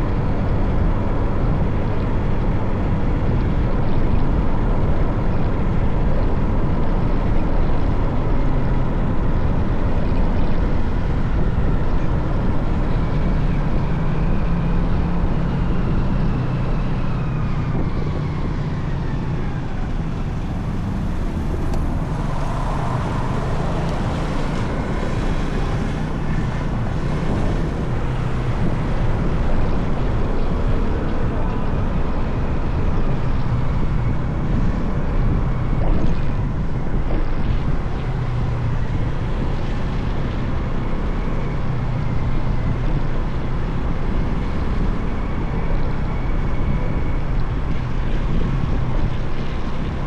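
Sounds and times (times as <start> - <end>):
wind on microphone: 0.0 - 50.0
whine falling in pitch: 17.4 - 31.1.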